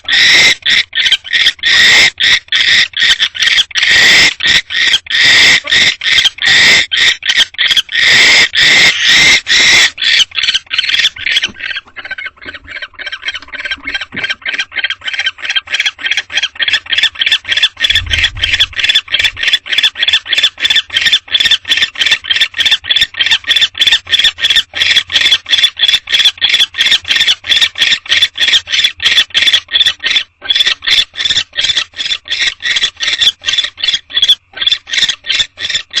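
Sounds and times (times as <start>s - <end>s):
barn owl squeaky calls: 0.0s - 36.0s.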